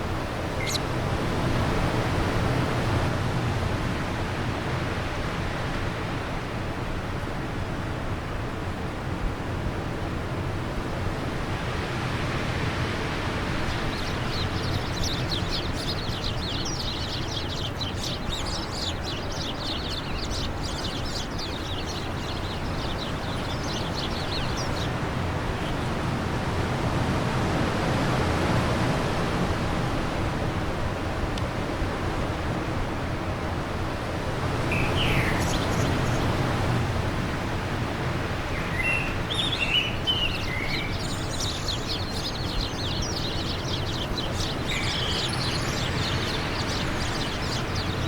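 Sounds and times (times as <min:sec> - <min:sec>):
birds singing high chirps: 0:00.0 - 0:01.0, 0:12.0 - 0:28.9, 0:34.5 - 0:48.0
wind blowing: 0:10.6 - 0:48.0.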